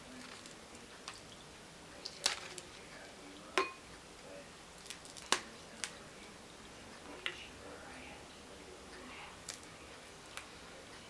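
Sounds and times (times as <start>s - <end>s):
crab shells cracking: 2.0s - 2.7s, 4.8s - 6.0s.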